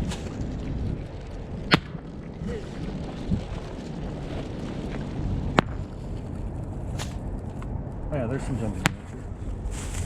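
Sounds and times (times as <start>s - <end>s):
wind buffeting microphone: 0.0s - 10.0s
sharp pop: 1.7s - 2.0s.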